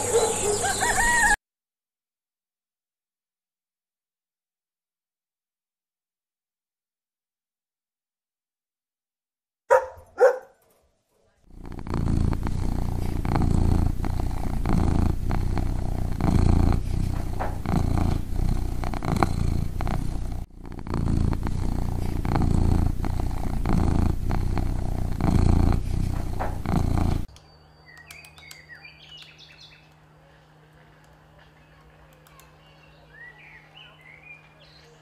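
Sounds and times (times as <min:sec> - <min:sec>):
cat purring loudly: 0:11.4 - 0:27.3.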